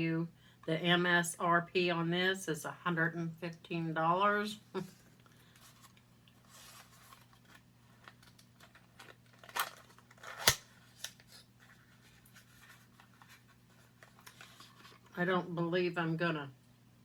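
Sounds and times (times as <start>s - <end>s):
packaging rustling and scraping: 5.0s - 15.2s.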